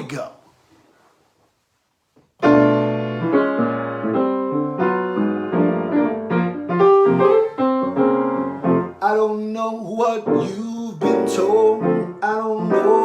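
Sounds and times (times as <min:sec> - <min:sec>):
solo jazz piano chords: 0:02.4 - 0:13.0.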